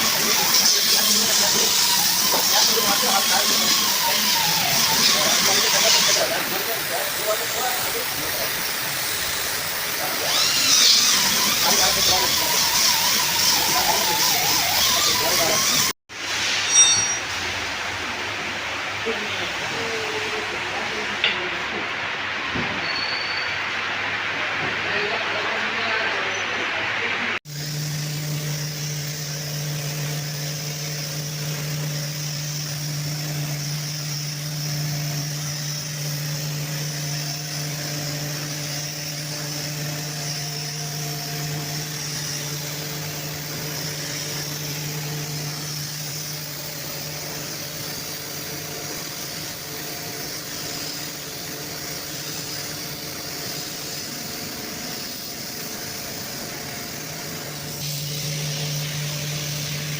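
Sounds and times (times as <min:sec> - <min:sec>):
electric motor hum: 0:00.0 - 0:16.0, 0:27.4 - 0:59.9
airy hiss: 0:28.4 - 0:59.9.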